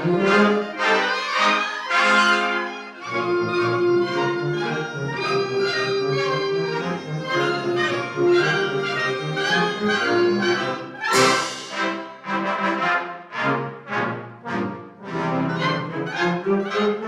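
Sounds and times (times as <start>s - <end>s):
loud accented band hit: 11.0s - 12.4s.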